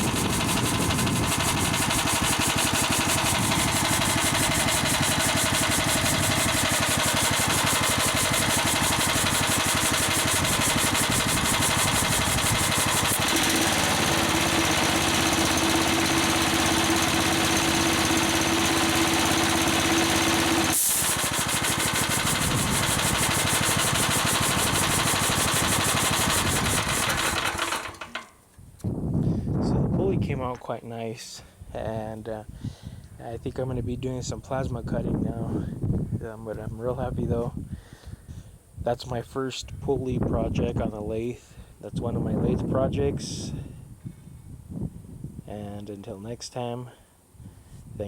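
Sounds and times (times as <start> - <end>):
steady hum: 0.0 - 14.7
air compressor pump chattering: 0.0 - 28.3.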